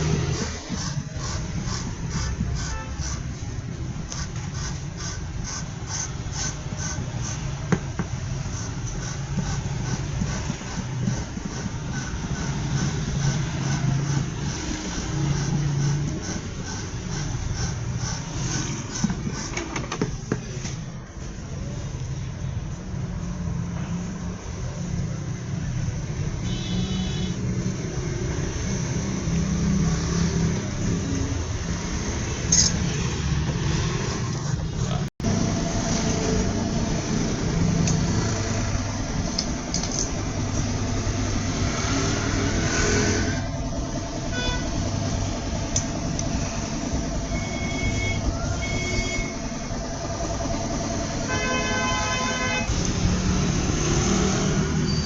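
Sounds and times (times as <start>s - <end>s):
road traffic rumbling: 0.0s - 55.0s
vehicle horns honking: 2.2s - 3.2s, 26.4s - 27.4s, 44.3s - 44.8s, 47.3s - 49.4s, 51.3s - 52.8s.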